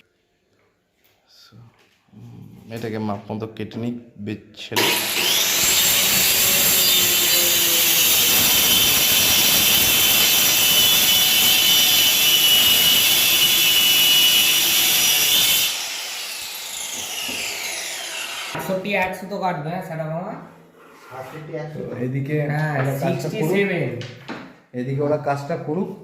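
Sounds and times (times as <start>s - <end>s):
electric power saw cutting plywood: 4.8s - 18.6s.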